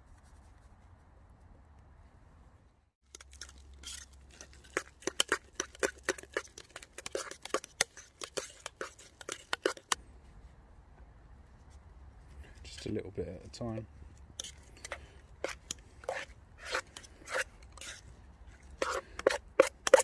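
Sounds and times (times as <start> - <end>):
utensil clicking and tapping: 4.3 - 10.0.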